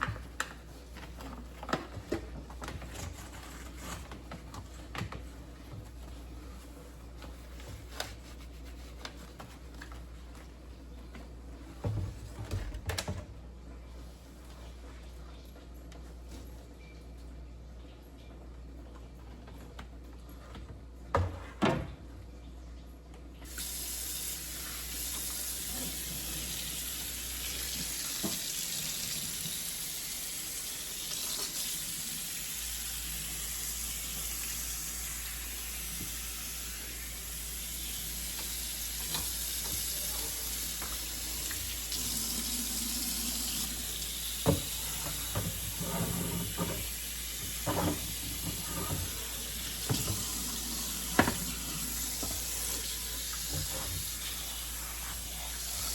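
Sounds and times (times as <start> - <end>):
faucet running into sink: 23.4 - 55.9
items clattering in sink: 44.2 - 54.2.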